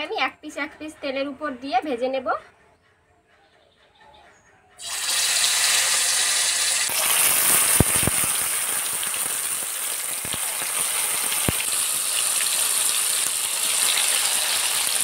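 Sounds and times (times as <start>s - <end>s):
chicken sizzling in hot oil: 4.8s - 15.0s.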